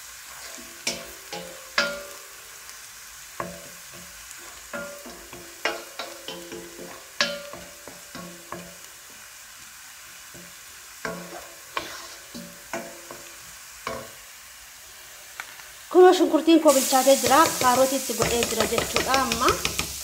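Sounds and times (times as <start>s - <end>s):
vegetables sizzling: 0.0s - 20.0s
spoon scraping a pan: 0.3s - 2.3s, 3.4s - 8.9s, 10.3s - 14.2s, 17.2s - 20.0s.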